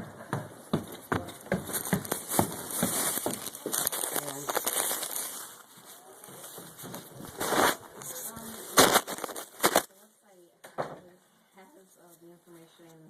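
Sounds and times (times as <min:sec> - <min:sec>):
footsteps walking: 0:00.0 - 0:09.9
camera handling rustle: 0:01.7 - 0:09.9.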